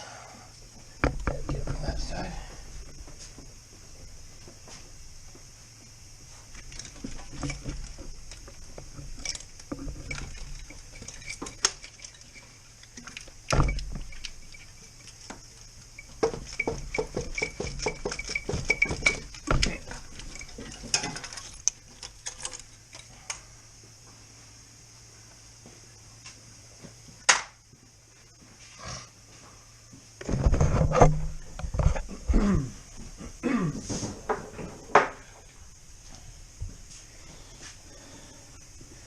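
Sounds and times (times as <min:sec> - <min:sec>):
metal tools clinking: 0:06.6 - 0:23.1.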